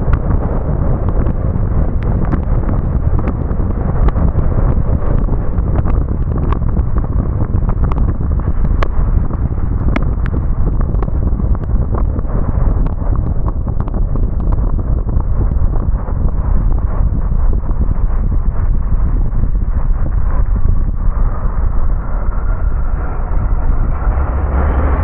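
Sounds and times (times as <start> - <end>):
road and wind rumble: 0.0 - 25.0.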